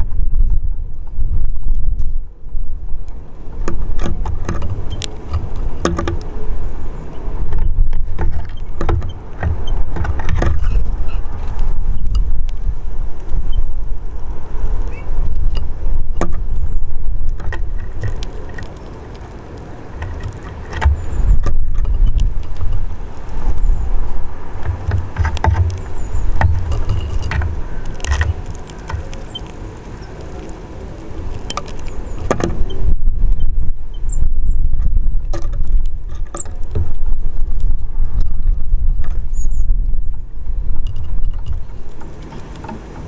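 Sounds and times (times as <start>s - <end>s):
wind buffeting microphone: 0.0s - 43.0s
birds tapping and clicking: 3.6s - 12.6s, 14.4s - 32.8s, 40.8s - 43.0s.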